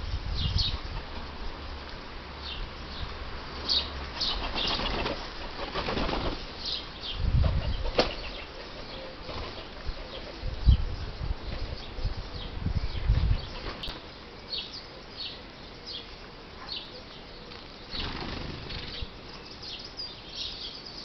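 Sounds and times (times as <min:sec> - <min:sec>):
bird wings flapping: 0:04.2 - 0:06.5, 0:07.4 - 0:09.8, 0:13.5 - 0:14.0, 0:17.9 - 0:19.1.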